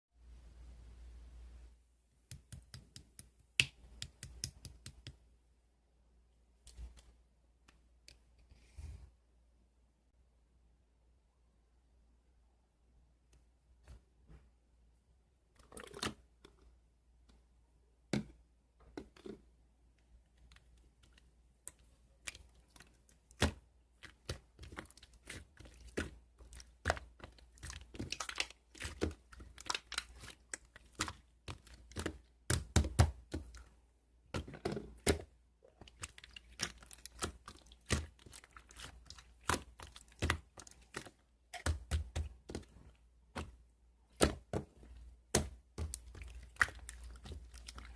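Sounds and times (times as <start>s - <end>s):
slime crackling and popping: 22.3s - 33.6s, 35.9s - 42.6s.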